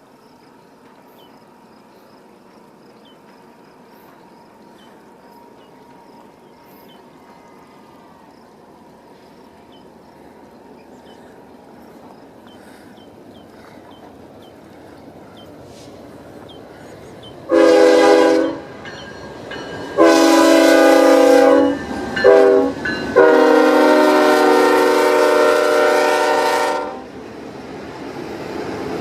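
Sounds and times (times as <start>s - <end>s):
train rumble: 0.0s - 29.0s
locomotive air horn blasts: 17.5s - 18.7s, 19.9s - 27.1s.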